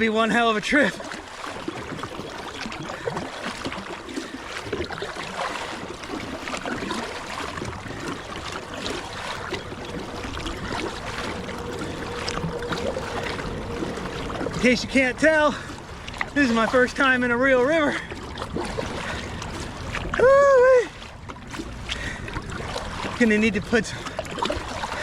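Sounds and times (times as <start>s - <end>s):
water rushing along hull: 0.0s - 25.0s
paddle strokes splashing: 0.8s - 20.2s.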